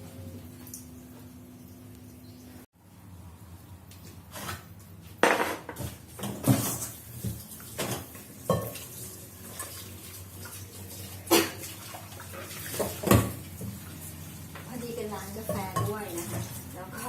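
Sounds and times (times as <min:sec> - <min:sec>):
dishes and cutlery clattering: 0:07.8 - 0:08.9.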